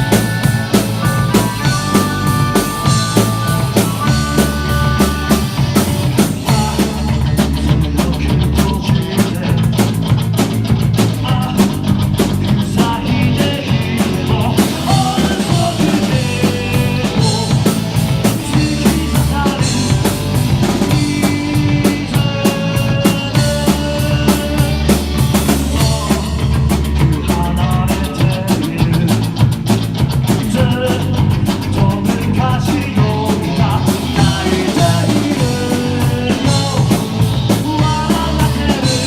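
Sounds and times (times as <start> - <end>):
drum-kit beat: 0.0 - 39.0
instrumental rock music: 0.0 - 39.0.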